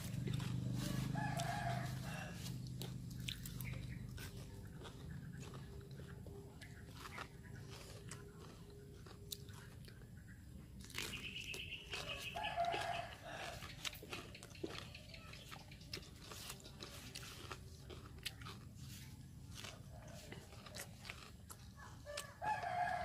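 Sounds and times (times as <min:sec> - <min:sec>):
chewing and crunching vegetables: 0:00.0 - 0:23.0
rooster crowing: 0:00.4 - 0:02.9, 0:12.0 - 0:13.7, 0:22.0 - 0:23.0.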